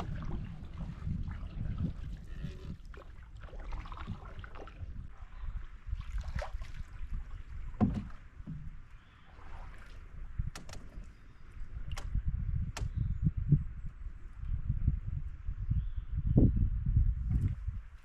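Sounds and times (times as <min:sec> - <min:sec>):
paddle strokes swishing through water: 0:00.0 - 0:11.8.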